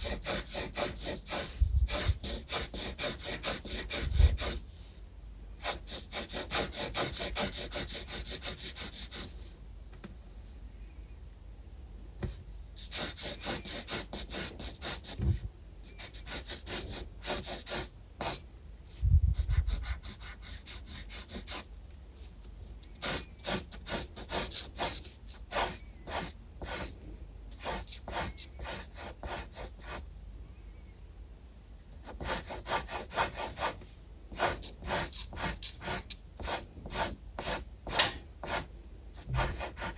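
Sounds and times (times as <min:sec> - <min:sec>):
pencil scratching on paper: 0:00.0 - 0:04.6, 0:05.6 - 0:09.3, 0:12.8 - 0:15.2, 0:16.0 - 0:18.4, 0:19.4 - 0:21.7, 0:23.0 - 0:30.0, 0:32.0 - 0:39.9.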